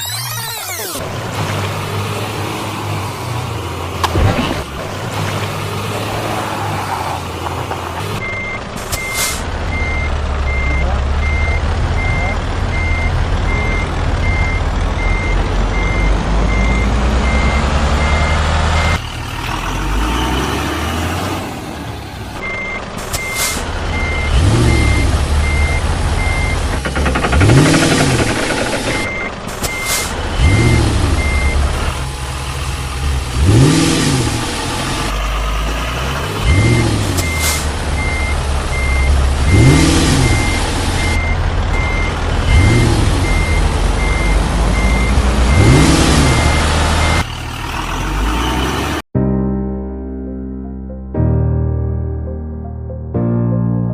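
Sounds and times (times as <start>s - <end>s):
truck engine running and revving: 0.0s - 49.1s
reversing alarm beeping: 8.2s - 19.0s, 22.4s - 31.6s, 36.5s - 47.3s.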